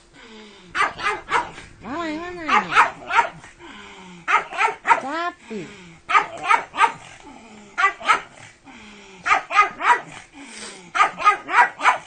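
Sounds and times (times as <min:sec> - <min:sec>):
dog barking: 0:00.8 - 0:01.6, 0:02.4 - 0:03.5, 0:04.3 - 0:05.1, 0:06.1 - 0:07.1, 0:07.8 - 0:08.4, 0:09.2 - 0:10.2, 0:10.9 - 0:12.0.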